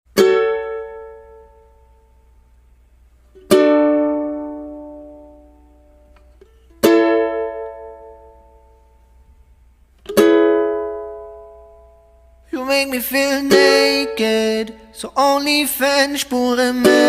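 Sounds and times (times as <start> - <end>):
strummed string chords: 10.1 - 17.0.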